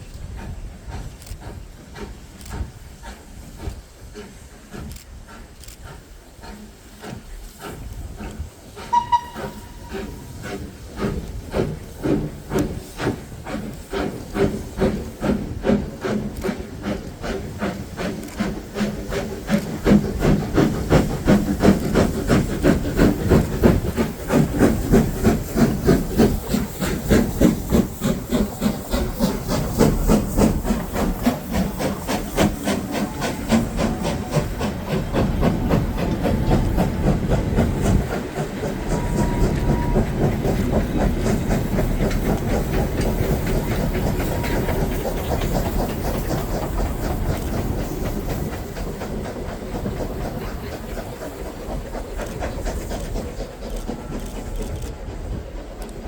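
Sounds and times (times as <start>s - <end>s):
hiss of steam: 0.0s - 56.0s
steam locomotive exhaust chuffing: 0.0s - 56.0s.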